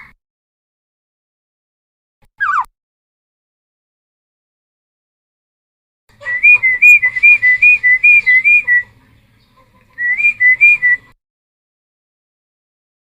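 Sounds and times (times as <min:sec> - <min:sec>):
bird whistling song: 0:02.4 - 0:02.7, 0:06.2 - 0:08.9, 0:10.0 - 0:11.2.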